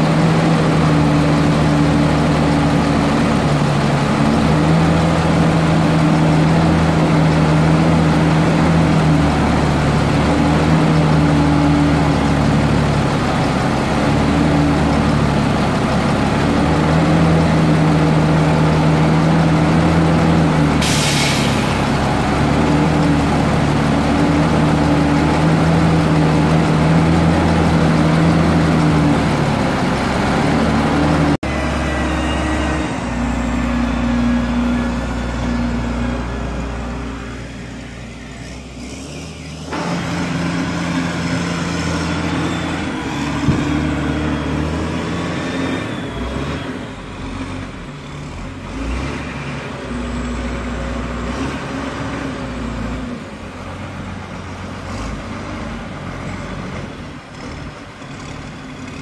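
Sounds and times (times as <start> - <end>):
diesel truck engine running: 0.0 - 59.0
air hiss: 20.8 - 21.8.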